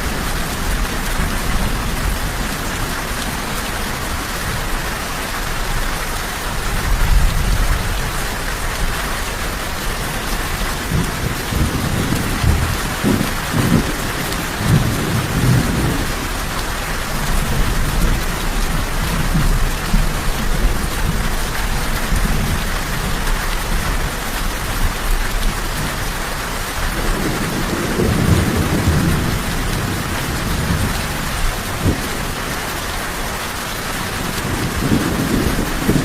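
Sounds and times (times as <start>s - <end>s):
heavy rain falling: 0.0s - 36.0s
rolling thunder rumbles: 9.9s - 23.2s, 24.8s - 32.8s, 34.0s - 36.0s.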